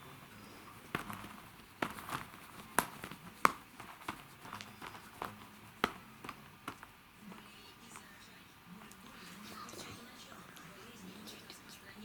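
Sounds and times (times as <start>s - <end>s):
light taps and clicks: 0.9s - 8.1s.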